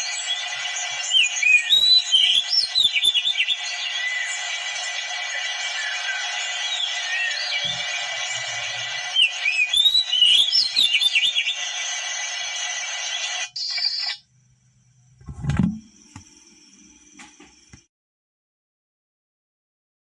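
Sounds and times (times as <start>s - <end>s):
bird song whistles and trills: 0.0s - 11.8s, 13.1s - 14.4s.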